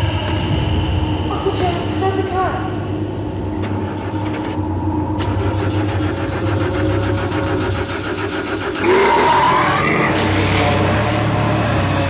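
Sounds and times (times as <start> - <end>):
car engine running and revving: 5.2 - 12.0.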